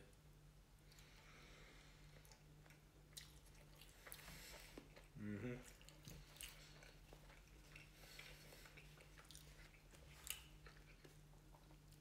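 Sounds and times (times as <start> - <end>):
steady low hum: 0.0 - 12.0
person chewing food: 0.8 - 12.0.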